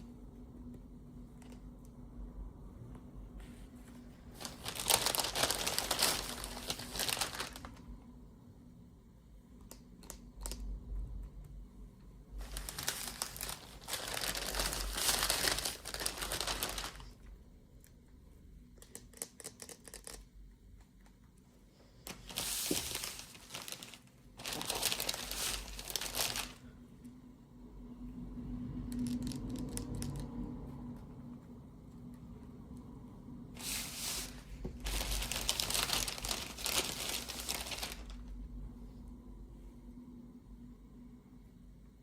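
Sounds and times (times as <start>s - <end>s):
packaging crinkling and tearing: 4.3s - 7.9s, 12.3s - 17.2s, 22.0s - 26.7s, 28.9s - 30.3s, 33.6s - 38.4s.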